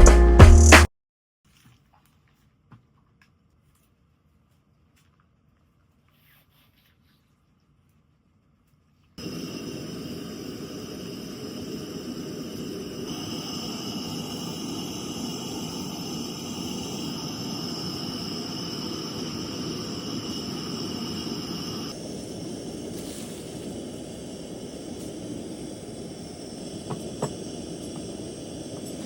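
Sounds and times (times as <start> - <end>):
fan running with high whine: 9.2 - 29.0.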